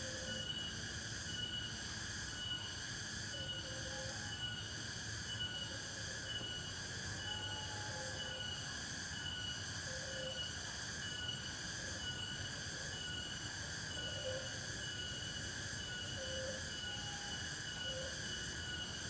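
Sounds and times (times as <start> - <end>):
insects buzzing: 0.0 - 19.0
repeating insect chirp: 0.0 - 19.0.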